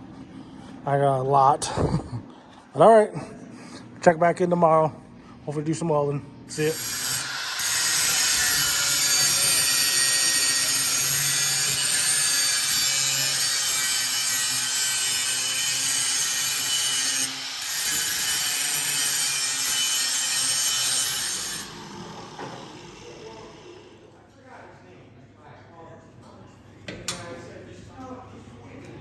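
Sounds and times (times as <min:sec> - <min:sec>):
power tool hissing: 0:06.5 - 0:24.1.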